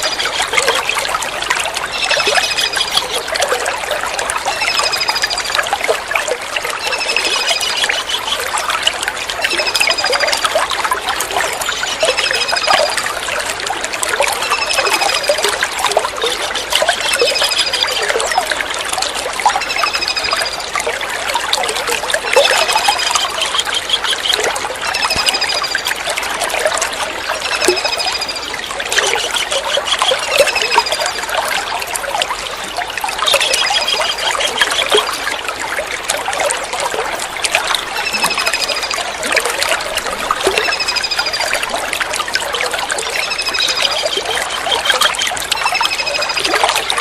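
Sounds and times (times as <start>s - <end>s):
trickle of running water: 0.0s - 47.0s.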